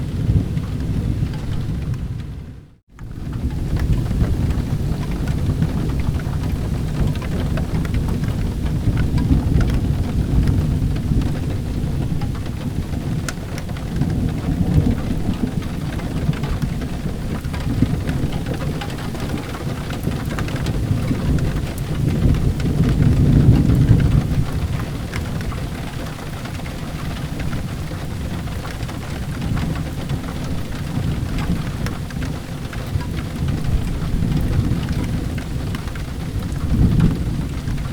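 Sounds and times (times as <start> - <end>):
low thunder rumbling: 0.0 - 37.9
steady rain: 0.0 - 37.9.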